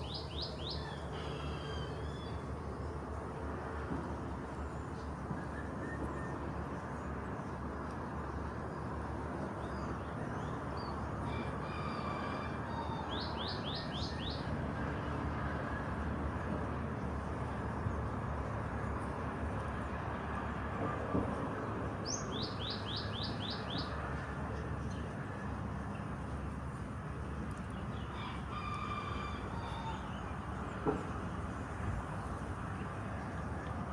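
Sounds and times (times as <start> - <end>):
songbird chirping: 0.0 - 1.0
outdoor background noise: 0.0 - 33.9.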